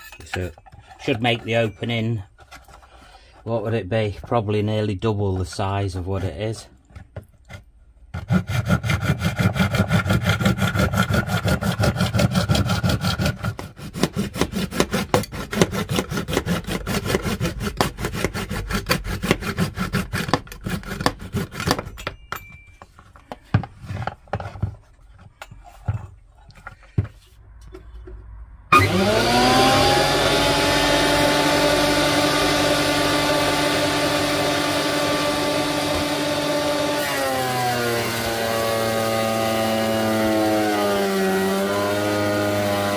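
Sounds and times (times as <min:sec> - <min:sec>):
hand saw cutting: 0:07.4 - 0:22.0, 0:28.7 - 0:42.9
electric motor whine: 0:28.7 - 0:42.9.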